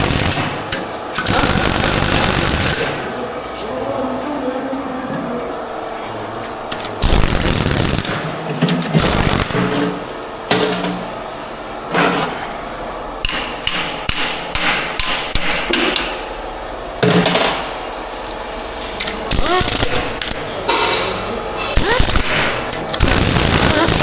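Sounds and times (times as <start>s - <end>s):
hammer striking metal: 10.5s - 11.2s, 13.2s - 16.1s.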